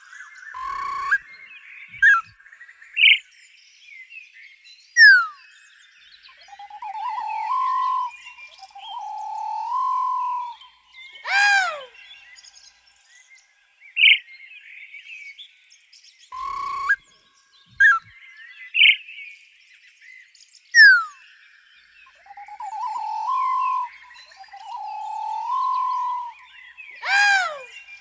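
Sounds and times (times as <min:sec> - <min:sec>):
bird chirps: 0:00.0 - 0:04.1, 0:05.0 - 0:15.6, 0:16.2 - 0:19.2, 0:20.7 - 0:28.0
faint birdsong chatter: 0:00.0 - 0:28.0
loud arching bird call: 0:00.5 - 0:01.2, 0:06.5 - 0:10.6, 0:11.2 - 0:12.0, 0:16.4 - 0:17.0, 0:22.4 - 0:26.4, 0:27.0 - 0:27.9
falling bird whistle: 0:00.5 - 0:01.3, 0:01.9 - 0:02.3, 0:05.0 - 0:05.3, 0:06.6 - 0:12.0, 0:16.4 - 0:17.0, 0:17.8 - 0:18.1, 0:20.8 - 0:21.2, 0:22.4 - 0:26.4, 0:27.0 - 0:27.9
harsh bird call: 0:00.5 - 0:02.3, 0:06.5 - 0:12.2, 0:16.4 - 0:17.0, 0:22.4 - 0:28.0
rising stepped bird whistle: 0:00.5 - 0:02.3, 0:05.0 - 0:05.3, 0:06.3 - 0:11.9, 0:16.4 - 0:17.0, 0:17.8 - 0:18.1, 0:20.8 - 0:21.2, 0:22.4 - 0:26.4, 0:27.0 - 0:27.9.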